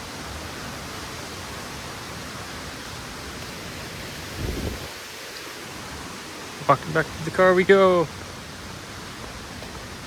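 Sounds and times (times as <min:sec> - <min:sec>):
fast-flowing water rushing: 0:00.0 - 0:10.0
wind buffeting microphone: 0:04.1 - 0:05.2.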